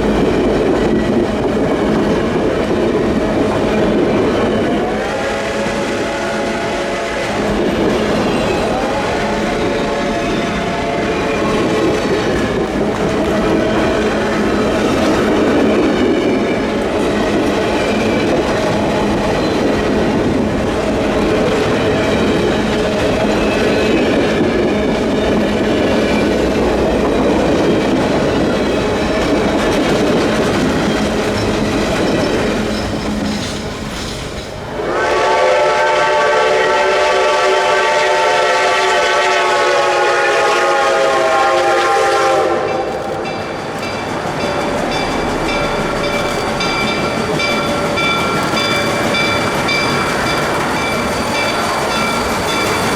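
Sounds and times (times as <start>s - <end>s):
train rumble and wheel clatter: 0.0s - 52.9s
steam whistle chime: 34.8s - 42.9s.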